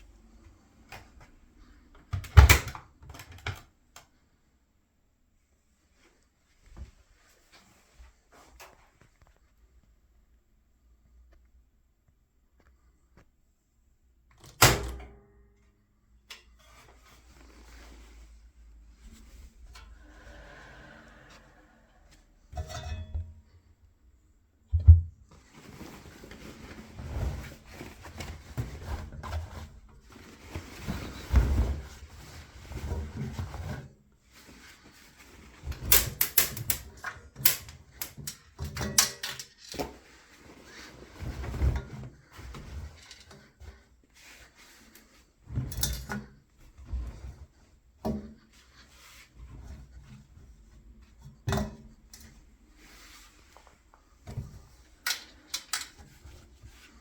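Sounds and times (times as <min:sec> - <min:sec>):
rustling noise: 0:05.6 - 0:10.0, 0:16.6 - 0:22.5, 0:25.2 - 0:38.6, 0:39.5 - 0:57.0
washing machine knocks and thumps: 0:24.7 - 0:25.4.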